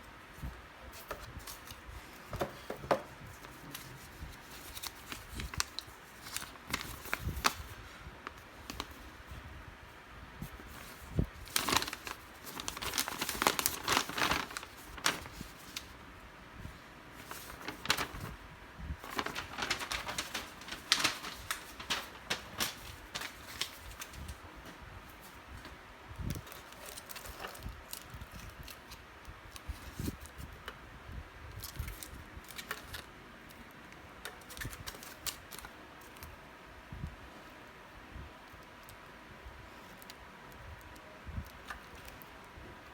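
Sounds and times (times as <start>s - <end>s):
packaging crinkling and rustling: 0.9s - 9.4s, 10.4s - 16.0s, 17.2s - 18.4s, 19.0s - 30.7s, 31.5s - 36.3s.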